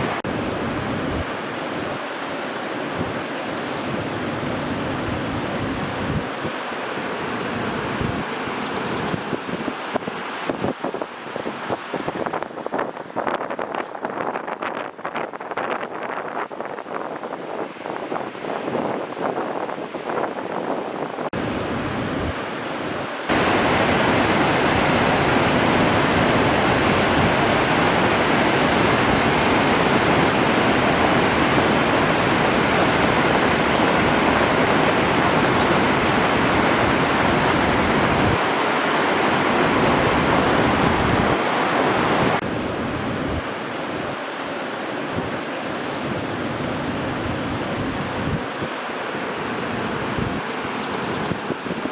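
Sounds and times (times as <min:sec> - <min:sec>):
waterfall rushing: 0:00.0 - 0:02.7, 0:21.4 - 0:44.8.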